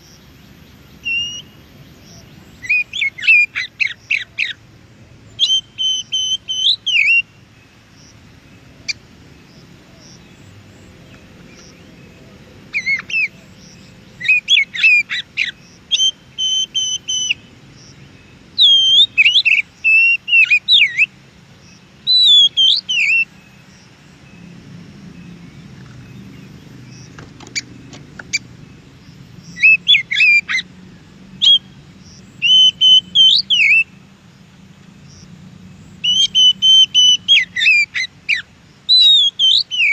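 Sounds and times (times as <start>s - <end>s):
bird singing whistled phrases: 1.0s - 1.6s, 5.4s - 7.3s, 14.2s - 17.5s, 18.6s - 21.1s, 22.1s - 23.3s, 29.6s - 30.6s, 31.4s - 31.7s, 32.4s - 33.9s, 36.0s - 39.9s.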